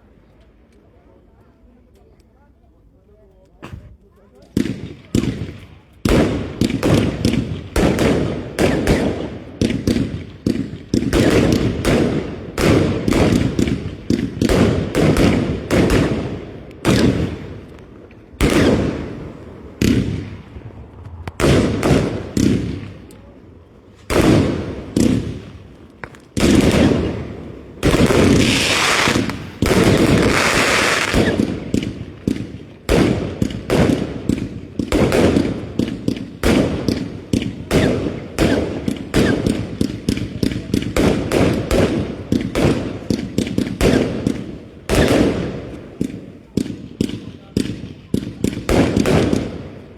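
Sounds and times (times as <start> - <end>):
fireworks bangs with echo: 4.5 - 49.9
fireworks crackling hiss: 23.8 - 47.7.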